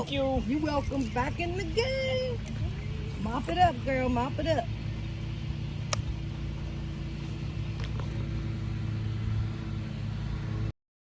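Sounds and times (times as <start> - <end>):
low motor hum: 0.0 - 10.8
sharp clicks: 5.9 - 6.1.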